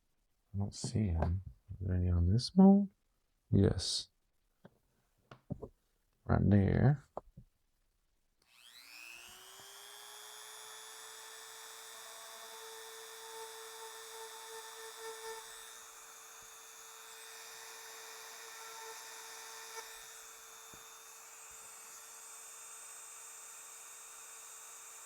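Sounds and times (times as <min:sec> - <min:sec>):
rotary tool whining: 0:08.5 - 0:25.0.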